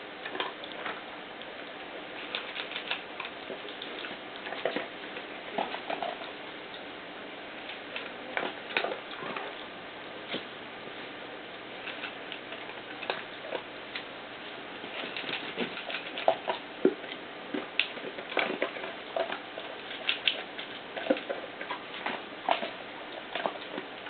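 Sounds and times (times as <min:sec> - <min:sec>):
puppies moving about: 0:14.8 - 0:24.0.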